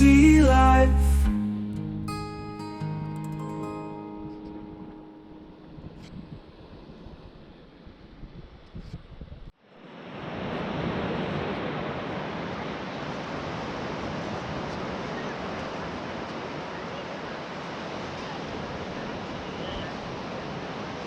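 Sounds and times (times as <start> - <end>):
wind buffeting microphone: 4.6 - 9.5
ocean surf breaking: 9.8 - 21.0.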